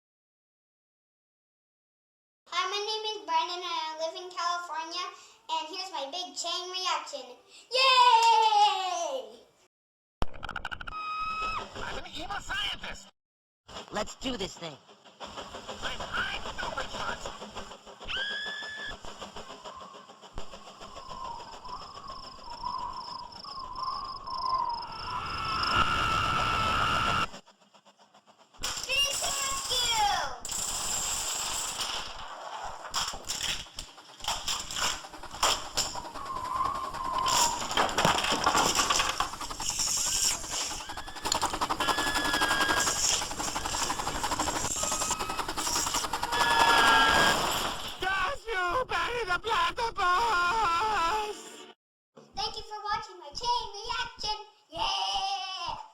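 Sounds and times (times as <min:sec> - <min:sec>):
rapid clicking: 0:14.9 - 0:23.2, 0:26.1 - 0:48.0
short whistle-like tone: 0:18.1 - 0:27.4, 0:35.8 - 0:38.1, 0:39.8 - 0:47.5
toy vehicles clattering on track: 0:28.6 - 0:48.0.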